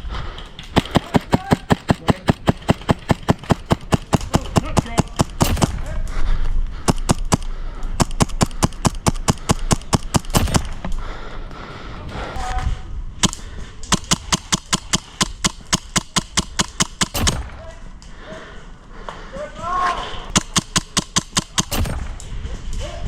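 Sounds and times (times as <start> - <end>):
airsoft guns firing: 0.7 - 6.0, 6.8 - 10.9, 13.2 - 17.7, 20.3 - 22.3.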